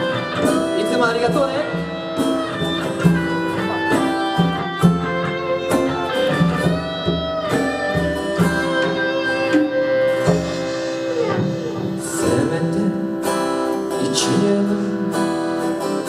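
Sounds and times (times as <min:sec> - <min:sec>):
guitars strumming chords: 0:00.0 - 0:16.0
held guitar lead notes: 0:00.0 - 0:16.0.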